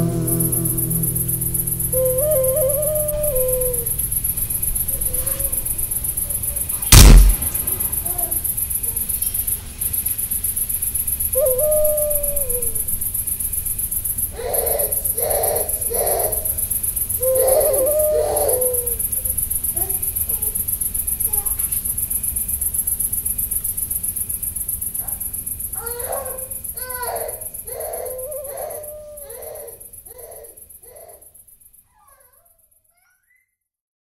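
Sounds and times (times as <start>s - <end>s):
owl hooting: 0.0s - 5.8s, 11.4s - 12.8s, 14.4s - 16.6s, 17.2s - 19.1s
high insect drone: 0.0s - 6.7s, 7.4s - 31.3s
loud gunshot: 6.9s - 8.1s.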